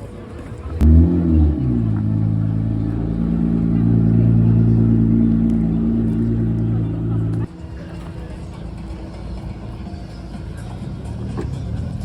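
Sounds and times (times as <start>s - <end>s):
car engine starting and idling: 0.8s - 7.5s.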